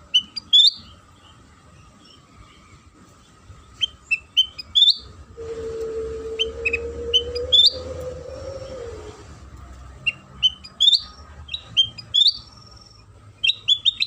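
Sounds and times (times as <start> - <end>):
bird chirping: 0.0 - 5.2, 6.2 - 9.2, 9.9 - 14.0
steady low hum: 0.0 - 10.0.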